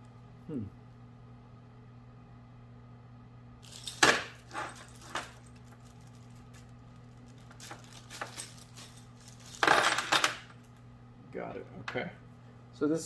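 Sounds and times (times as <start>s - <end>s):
small metal parts clinking: 3.6s - 10.6s.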